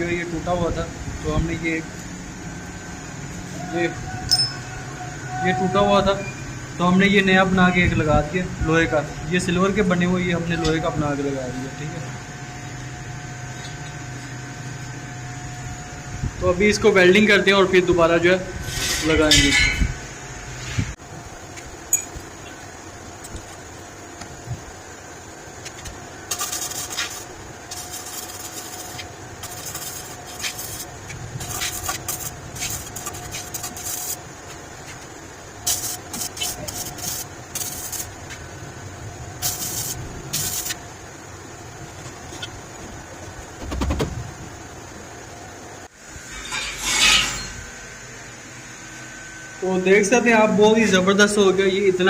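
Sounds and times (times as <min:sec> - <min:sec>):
faint steady hum: 0:00.0 - 0:52.0
welding hiss: 0:25.5 - 0:38.7, 0:39.4 - 0:41.6.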